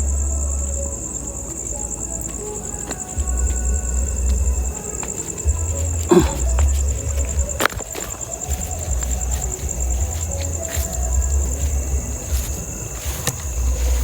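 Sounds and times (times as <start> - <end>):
crickets trilling: 0.0 - 14.0
low rumbling on microphone: 3.2 - 14.0.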